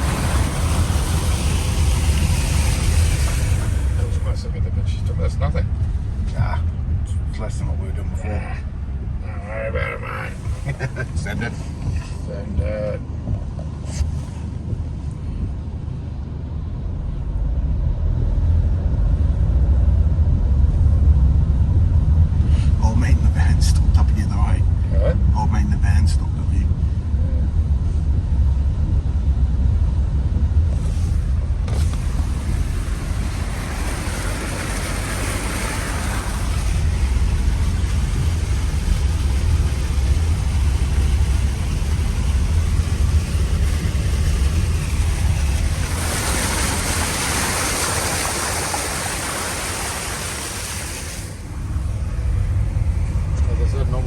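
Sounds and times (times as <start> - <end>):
water spray hissing: 0.0 - 4.3, 30.8 - 51.9
vehicle engine and tyres rumbling: 0.0 - 54.0.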